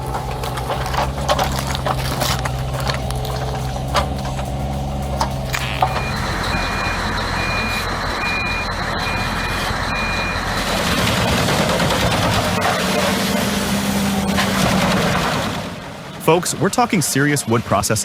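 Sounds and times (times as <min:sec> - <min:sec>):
backup alarm beeping: 0:00.0 - 0:12.7
machine engine running: 0:00.0 - 0:16.3.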